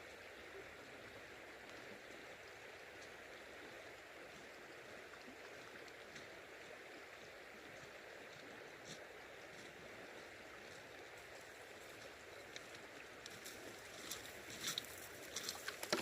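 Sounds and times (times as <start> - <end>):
faint river water flowing: 0.0 - 16.0
small clicks and ticks: 11.8 - 16.0.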